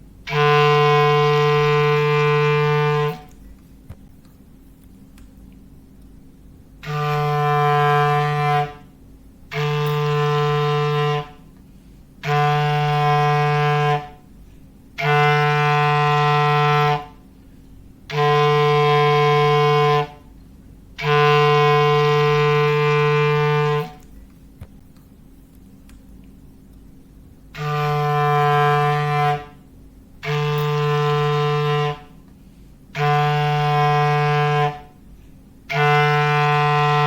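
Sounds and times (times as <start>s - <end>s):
low foghorn blasts: 0.2s - 3.4s, 6.8s - 11.6s, 12.2s - 17.3s, 18.0s - 20.4s, 21.0s - 24.1s, 27.5s - 37.0s.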